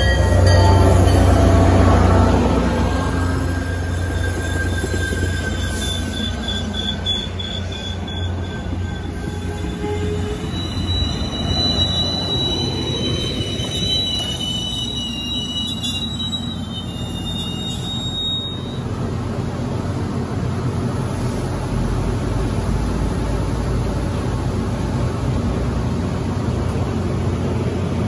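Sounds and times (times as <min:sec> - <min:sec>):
train wheels rumbling on rail: 0:00.0 - 0:28.0
high-pitched wheel squeal: 0:02.8 - 0:18.9.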